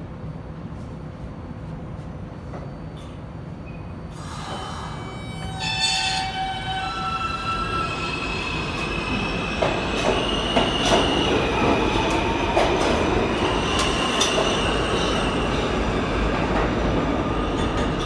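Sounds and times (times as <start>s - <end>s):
subway train rumbling: 0.0s - 18.0s
wheels squealing on rails: 3.6s - 16.3s.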